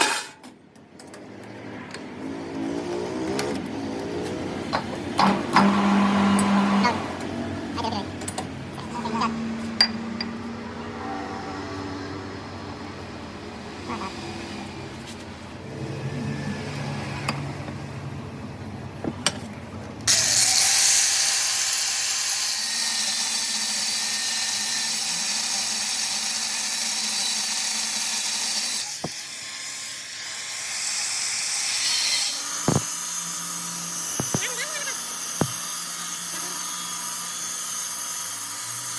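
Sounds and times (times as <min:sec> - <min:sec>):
loud steady tool noise: 0:20.1 - 0:38.9.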